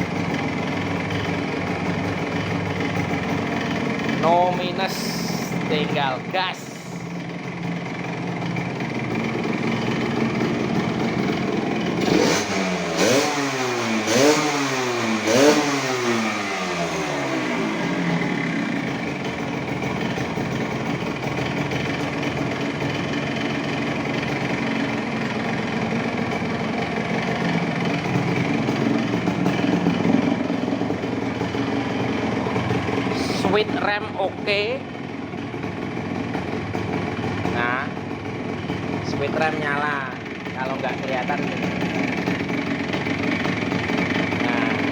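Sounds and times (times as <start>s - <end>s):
two-stroke engine idling and revving: 0.0s - 44.9s.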